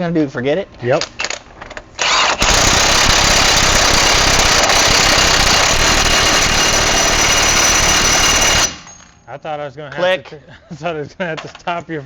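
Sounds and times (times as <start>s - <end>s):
impact wrench hammering: 2.4s - 9.2s.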